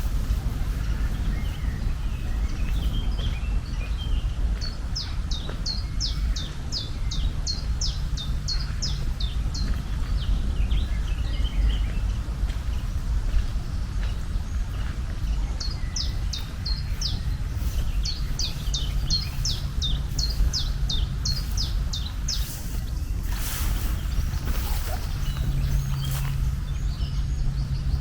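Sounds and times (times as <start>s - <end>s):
steady low rumble: 0.0s - 28.0s
bird chirps: 15.6s - 28.0s.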